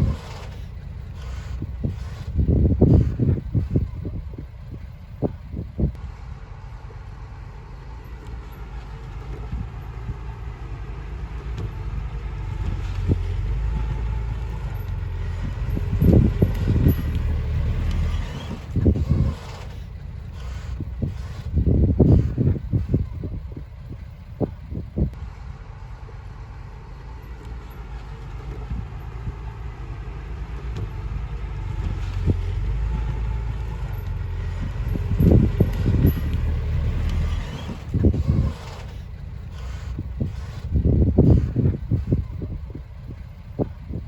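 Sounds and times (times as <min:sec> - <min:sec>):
diesel machinery low rumble: 0:00.0 - 0:44.0
low thumps: 0:27.3 - 0:44.0.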